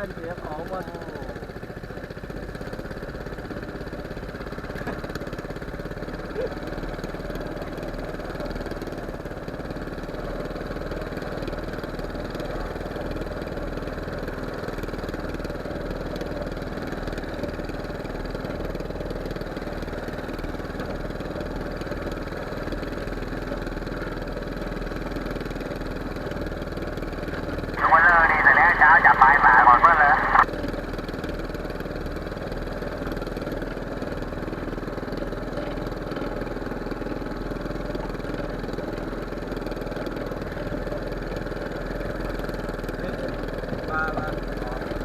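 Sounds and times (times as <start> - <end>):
boat engine running: 31.5 - 45.0.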